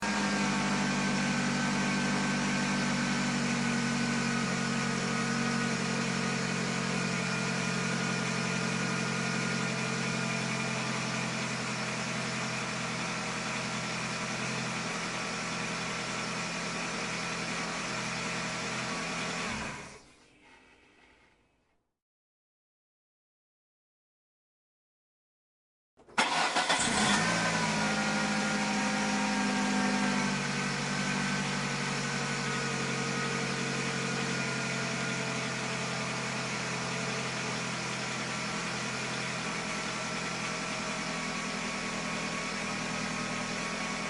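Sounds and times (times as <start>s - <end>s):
car engine running: 0.0s - 19.8s, 26.2s - 44.0s.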